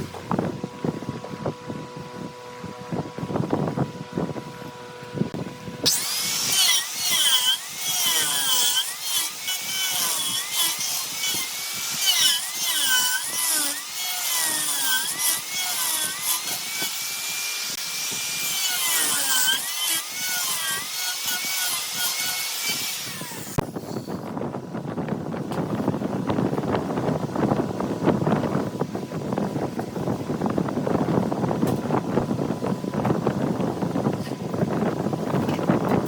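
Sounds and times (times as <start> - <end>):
lathe tool cutting wood: 5.8 - 23.6.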